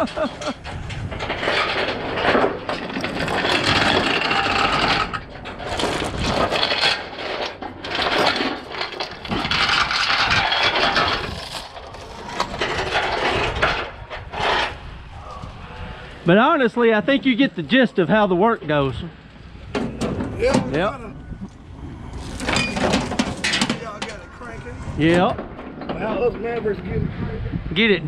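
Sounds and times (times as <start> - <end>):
scraping and rattling of gear: 0.0 - 15.6, 22.0 - 25.1.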